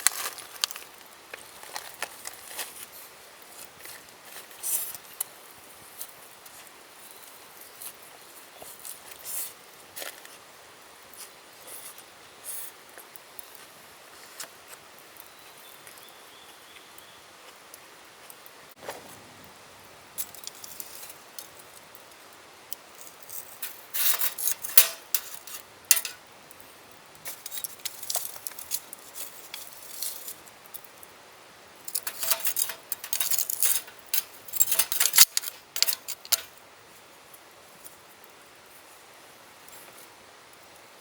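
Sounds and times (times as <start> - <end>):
camp gear clicking and rattling: 23.3 - 26.2, 27.3 - 30.3, 31.9 - 36.5.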